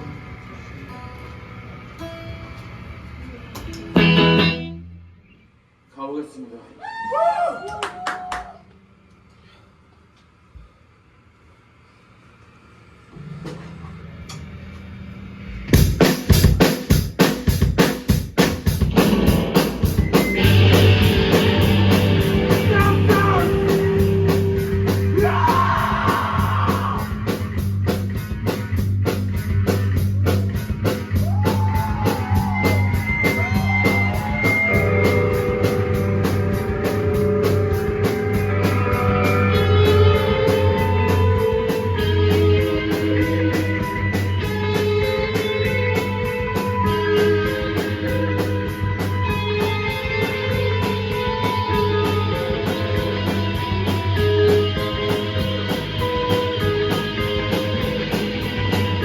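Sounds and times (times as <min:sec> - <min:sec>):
live rock band playing: 0:03.6 - 0:04.8, 0:15.8 - 0:59.0
drums crashing: 0:03.9 - 0:04.6, 0:15.4 - 0:59.0.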